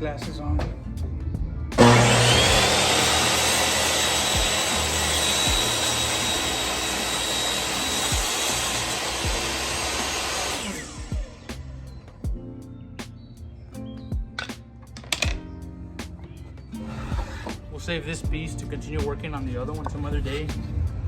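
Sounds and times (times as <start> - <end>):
power saw cutting wood: 1.8 - 11.6.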